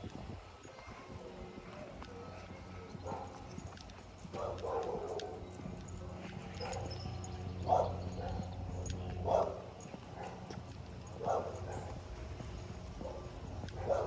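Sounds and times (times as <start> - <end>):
dog barking: 3.0 - 3.5, 4.3 - 5.4, 6.6 - 7.0, 7.6 - 8.5, 9.2 - 10.6, 11.2 - 12.1, 13.0 - 14.0
steady low hum: 5.4 - 14.0.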